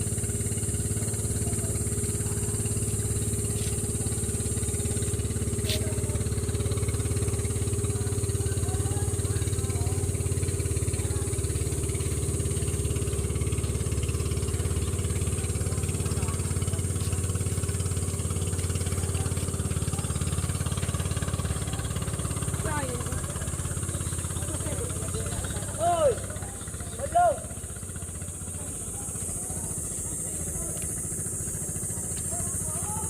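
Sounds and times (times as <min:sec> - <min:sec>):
small engine running: 0:00.0 - 0:33.0.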